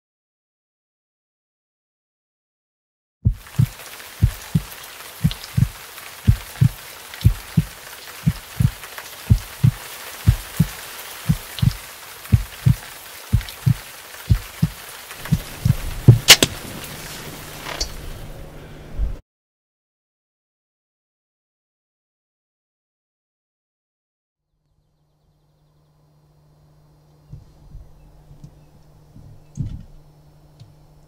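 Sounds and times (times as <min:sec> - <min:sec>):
heartbeat thumping: 0:03.2 - 0:16.7, 0:27.3 - 0:28.5, 0:29.2 - 0:29.9
rain hiss: 0:03.3 - 0:19.1
low hum: 0:11.3 - 0:19.2, 0:24.6 - 0:31.0
loud sharp crack: 0:15.1 - 0:18.0.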